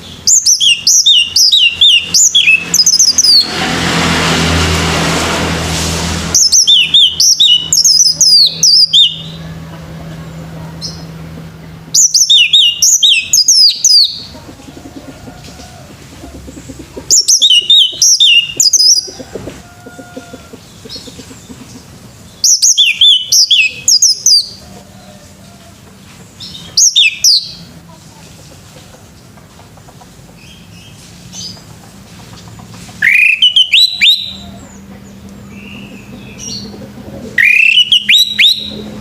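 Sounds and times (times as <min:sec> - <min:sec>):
thrush singing whistled notes: 0:00.0 - 0:03.5, 0:06.3 - 0:09.5, 0:11.9 - 0:14.3, 0:17.1 - 0:19.3, 0:22.3 - 0:24.6, 0:26.6 - 0:27.6, 0:33.0 - 0:34.6, 0:37.4 - 0:38.9.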